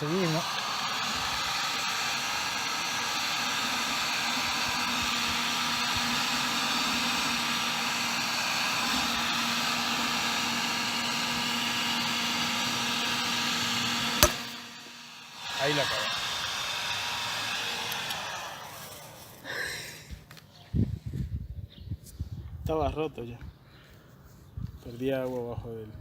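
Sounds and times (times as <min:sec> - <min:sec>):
heat gun fan blowing: 0:00.0 - 0:20.0.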